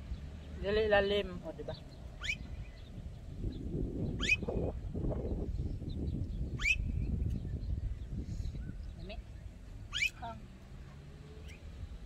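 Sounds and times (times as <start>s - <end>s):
bird whistled call: 2.2s - 2.9s, 4.1s - 4.6s, 6.4s - 7.2s, 9.9s - 10.2s.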